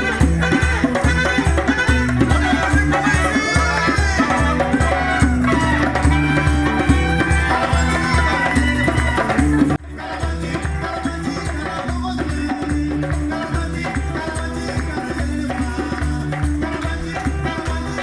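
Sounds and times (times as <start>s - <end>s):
live afropop band music: 0.0s - 18.0s.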